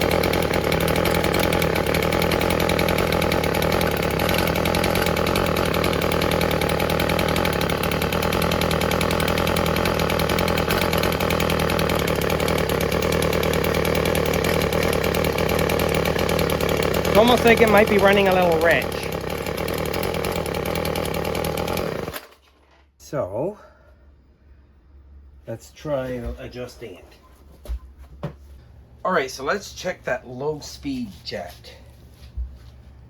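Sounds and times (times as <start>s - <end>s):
string trimmer engine running: 0.0s - 22.4s.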